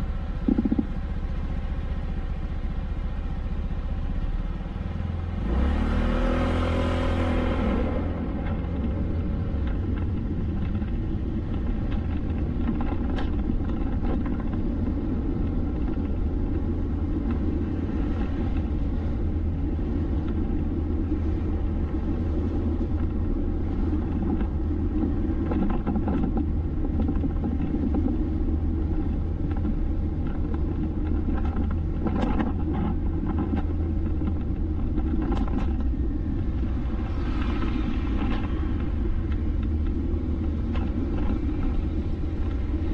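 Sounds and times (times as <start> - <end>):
passing traffic: 0.0 - 42.9
vehicle road and engine rumble: 0.0 - 42.9.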